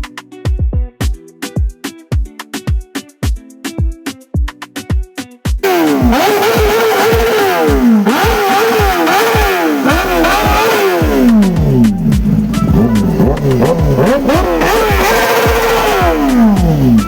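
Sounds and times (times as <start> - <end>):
music with steady bass beat: 0.0 - 17.0
motorcycle engines revving hard: 5.6 - 17.0.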